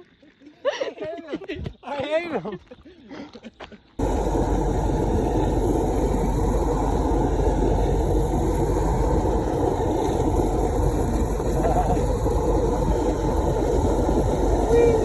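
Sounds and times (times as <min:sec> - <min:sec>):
vehicle engine and road noise: 0:04.0 - 0:15.0.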